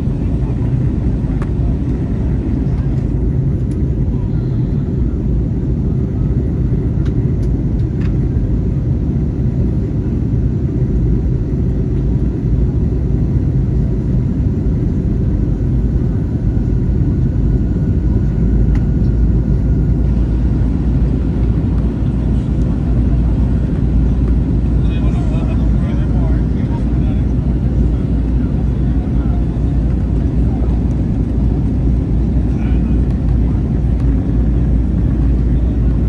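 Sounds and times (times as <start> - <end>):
airliner cabin engine rumble: 0.0 - 36.0.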